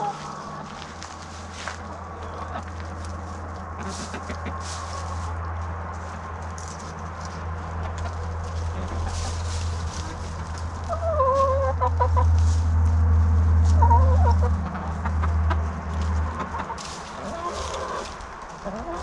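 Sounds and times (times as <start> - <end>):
hens clucking: 0.0 - 12.7, 13.6 - 19.0
steady low rumble: 0.0 - 19.0
short pitched hen calls: 13.8 - 14.8.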